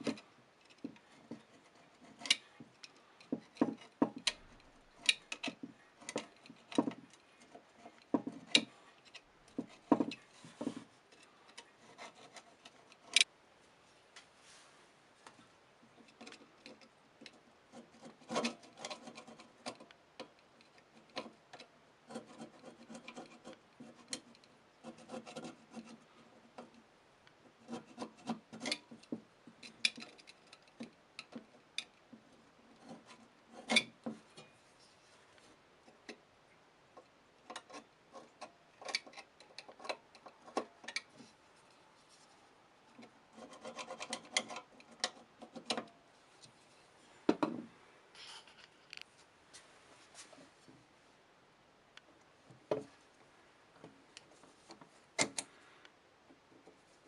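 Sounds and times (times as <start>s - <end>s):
scraping and rubbing: 9.5s - 13.2s, 43.0s - 47.3s, 48.2s - 50.7s.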